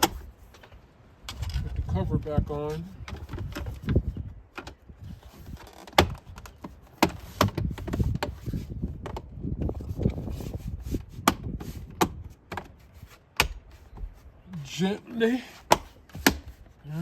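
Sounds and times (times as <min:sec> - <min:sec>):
handling noise: 0:00.0 - 0:17.0
armrest cover clicking into place: 0:13.4 - 0:14.0.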